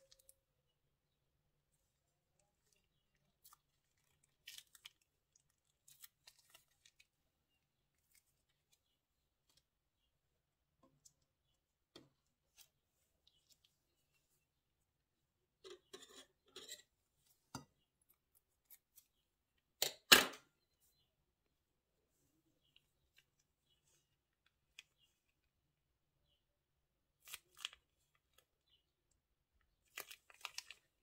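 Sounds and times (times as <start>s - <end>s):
plastic bag crinkles: 29.8s - 31.0s.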